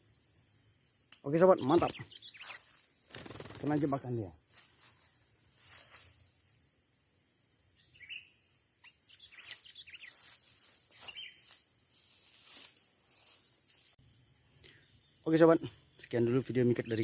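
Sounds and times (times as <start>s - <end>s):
high-pitched insect drone: 0.0s - 17.0s
short bird chirps: 1.6s - 2.8s, 7.8s - 10.3s, 10.9s - 11.5s.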